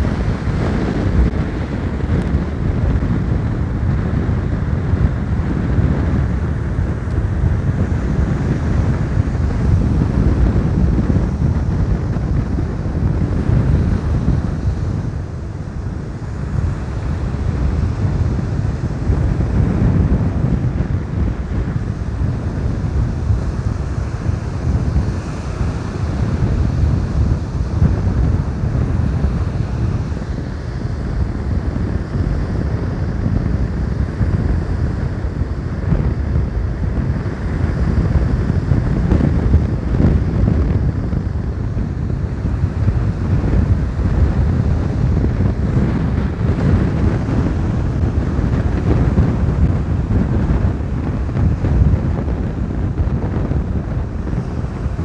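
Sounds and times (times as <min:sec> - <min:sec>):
stormy sea surf: 0:00.0 - 0:55.0
wind buffeting microphone: 0:00.0 - 0:55.0.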